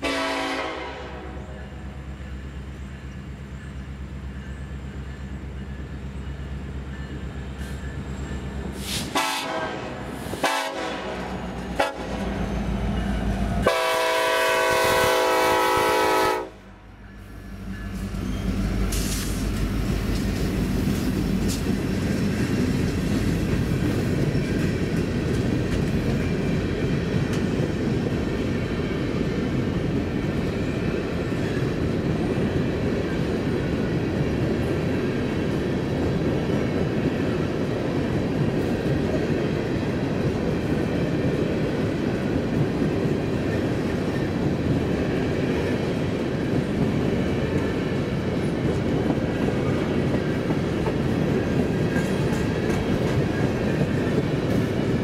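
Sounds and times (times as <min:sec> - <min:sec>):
locomotive air horn blasts: 0:00.0 - 0:01.5, 0:08.8 - 0:12.3, 0:13.6 - 0:16.8
locomotive engine passing: 0:00.0 - 0:55.0
train rumble and wheel clatter: 0:00.0 - 0:55.0.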